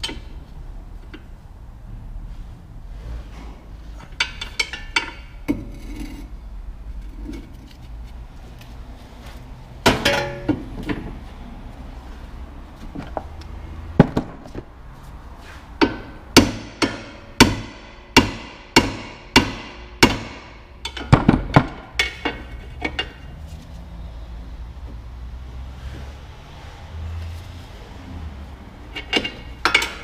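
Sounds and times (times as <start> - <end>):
hammer striking metal: 15.8 - 22.4.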